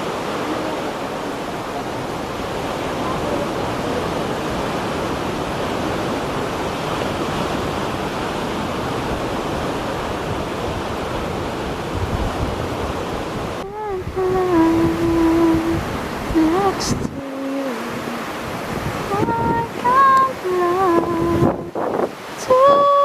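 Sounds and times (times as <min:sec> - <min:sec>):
voice singing long held note: 0:00.0 - 0:04.2, 0:13.6 - 0:21.8, 0:22.4 - 0:23.0
wind rushing: 0:00.0 - 0:17.2
choppy sea waves: 0:00.0 - 0:23.0
wind noise on microphone: 0:00.0 - 0:23.0.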